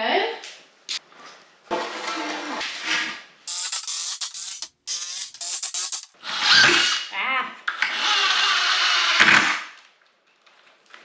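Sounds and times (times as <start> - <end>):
cordless drill driving screws: 3.5 - 6.1.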